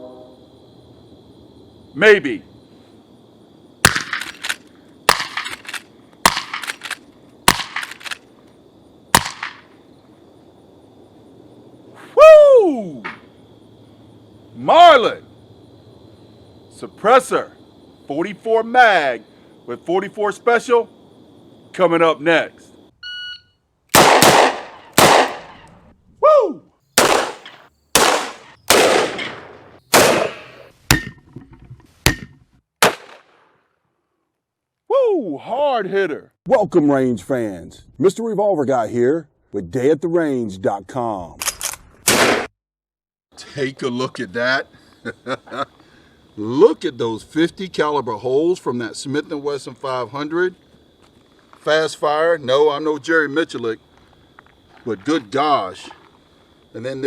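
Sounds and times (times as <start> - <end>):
rifle shots: 3.8 - 8.2, 9.1 - 9.7, 23.9 - 25.7, 27.0 - 30.7, 32.8 - 33.4, 42.1 - 42.5
heavy gunshots: 5.1 - 5.6, 24.0 - 25.6, 27.0 - 30.6.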